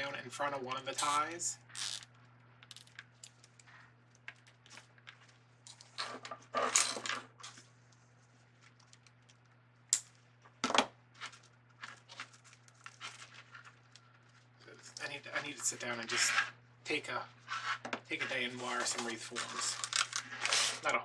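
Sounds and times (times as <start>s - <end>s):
zip tie clicks and snaps: 1.0s - 1.2s, 1.8s - 2.0s.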